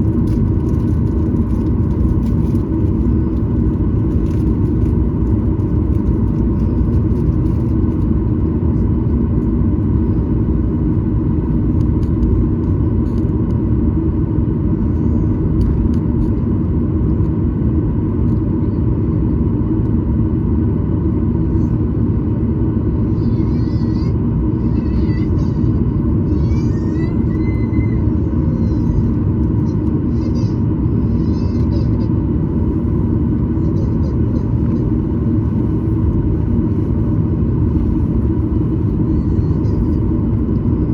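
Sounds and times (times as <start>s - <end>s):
airplane cabin engine rumble: 0.0s - 40.9s.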